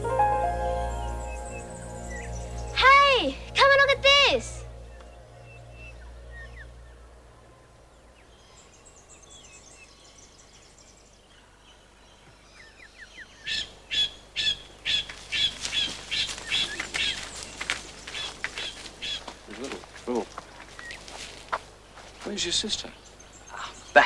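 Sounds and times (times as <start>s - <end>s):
faint high bird chirps: 0.4s - 10.8s.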